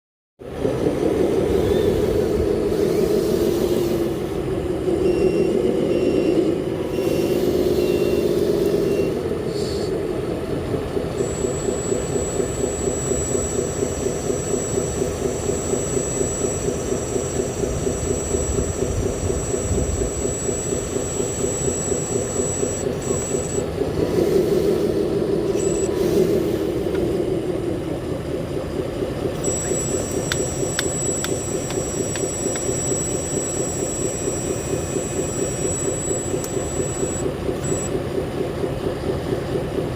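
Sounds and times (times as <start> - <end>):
toy truck engine pulsing: 0.4 - 39.9
thin high whine: 1.2 - 10.0, 11.1 - 27.6, 29.3 - 38.0
short high beeps: 11.2 - 23.7, 29.4 - 37.9.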